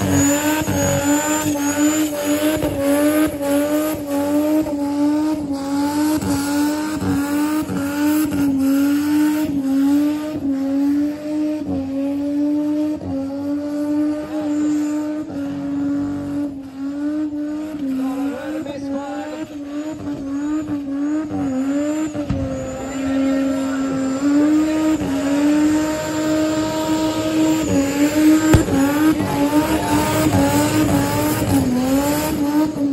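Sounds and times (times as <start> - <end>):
car engine at high revs: 0.0 - 32.9.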